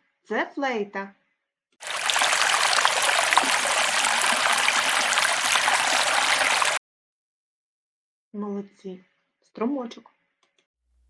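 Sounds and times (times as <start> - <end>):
stream babbling over stones: 1.8 - 6.8.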